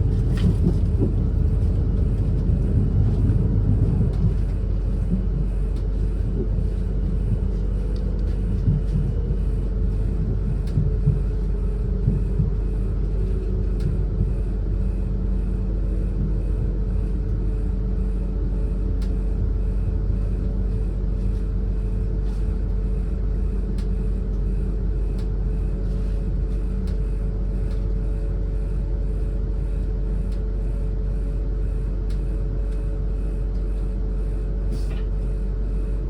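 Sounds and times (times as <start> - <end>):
train wheels rumbling on track: 0.0 - 5.3
steady hum: 0.0 - 36.0.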